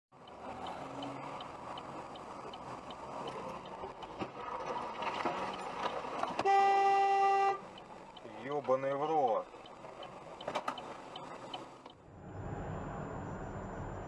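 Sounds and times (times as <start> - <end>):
faint regular ticking: 0.1 - 4.2, 7.6 - 12.0
car road and engine noise: 0.1 - 14.0
car horn blast: 6.4 - 7.6.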